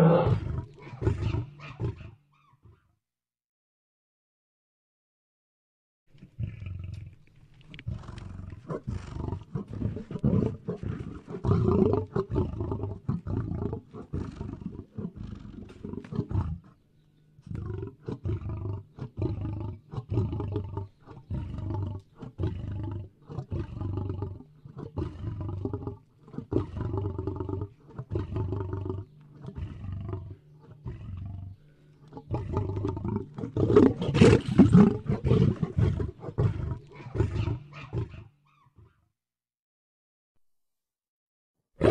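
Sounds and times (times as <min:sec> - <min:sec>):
lion roaring and grunting: 0:00.0 - 0:02.2, 0:07.8 - 0:16.8, 0:17.4 - 0:39.0.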